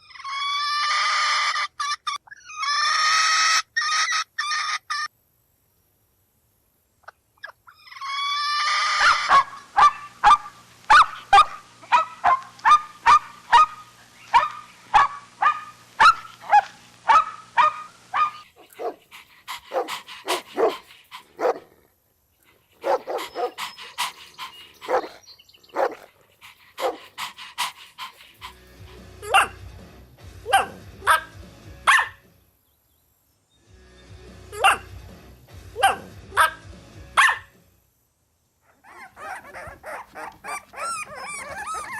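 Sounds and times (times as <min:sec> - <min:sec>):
dogs barking: 0:09.0 - 0:21.8, 0:22.8 - 0:28.6, 0:29.2 - 0:29.6, 0:30.4 - 0:32.2, 0:34.6 - 0:34.9, 0:35.8 - 0:36.6, 0:37.2 - 0:37.5, 0:38.6 - 0:41.9.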